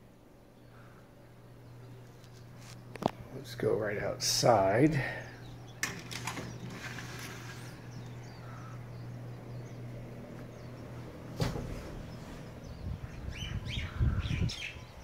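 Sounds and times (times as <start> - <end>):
steady low hum: 0.0 - 15.0
faint bird chirps: 7.2 - 11.1.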